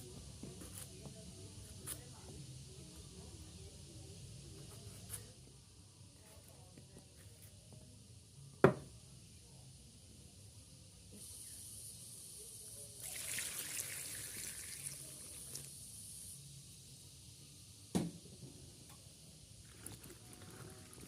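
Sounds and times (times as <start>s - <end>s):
knock: 8.6s - 8.9s, 17.9s - 18.2s
water running and splashing: 13.0s - 15.7s.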